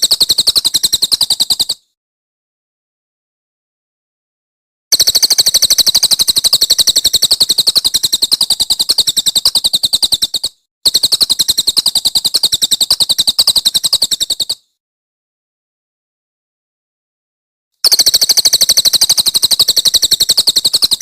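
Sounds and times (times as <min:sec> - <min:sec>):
songbird rapid trill: 0:00.0 - 0:02.0, 0:04.9 - 0:14.8, 0:17.8 - 0:21.0.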